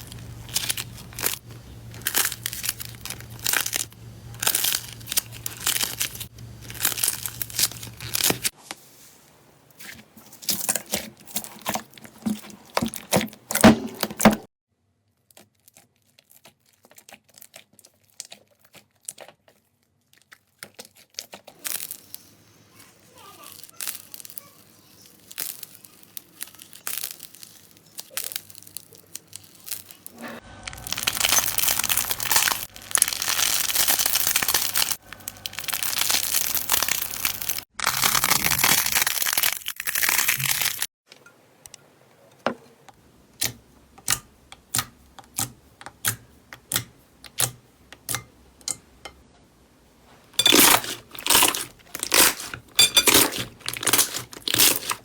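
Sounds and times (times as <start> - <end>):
slime crackling: 0.0 - 8.5, 23.1 - 40.9, 50.4 - 55.0.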